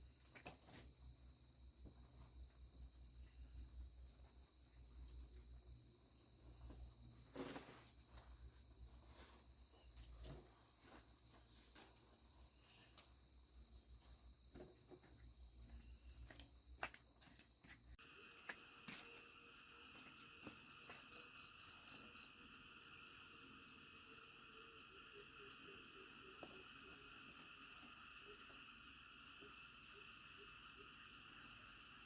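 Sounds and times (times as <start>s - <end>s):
crickets and insects trilling: 0.0s - 32.0s
insect pulsing call: 18.1s - 32.0s.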